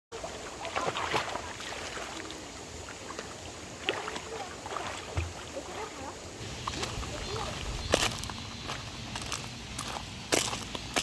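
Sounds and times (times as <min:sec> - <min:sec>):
sharp water splashes: 0:00.1 - 0:08.1
stream water over rocks: 0:00.1 - 0:09.2.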